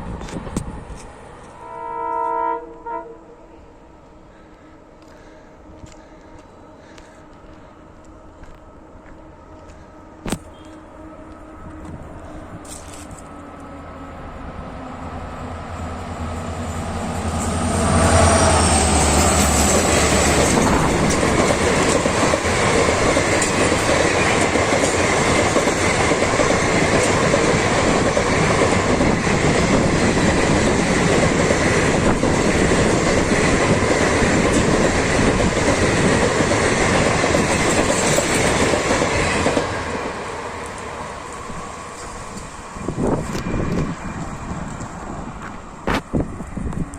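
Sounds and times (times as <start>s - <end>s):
diesel locomotive engine drone: 0.0s - 46.9s
train wheels clattering on rails: 16.5s - 46.1s.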